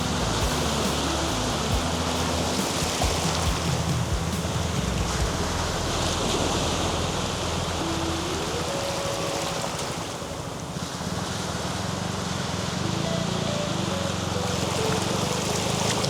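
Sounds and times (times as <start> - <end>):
sea surf washing onto beach: 0.0 - 16.0.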